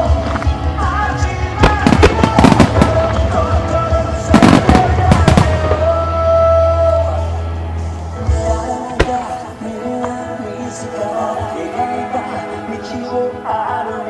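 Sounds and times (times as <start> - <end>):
music: 0.0 - 14.0
firework shells bursting: 1.6 - 3.4, 8.9 - 10.2.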